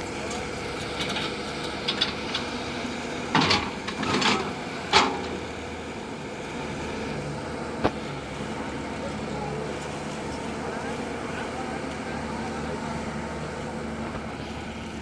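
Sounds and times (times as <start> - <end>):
heavy machinery engine running: 0.0 - 15.0
sharp clanks and knocks: 1.0 - 5.7.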